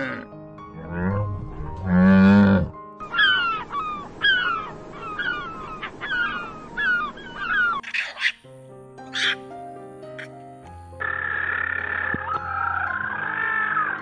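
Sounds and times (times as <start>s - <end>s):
low drawn-out animal call: 0.0s - 3.3s, 11.0s - 14.0s
background music: 0.0s - 14.0s
bird calling in falling notes: 3.0s - 8.5s, 9.1s - 9.4s, 11.0s - 14.0s.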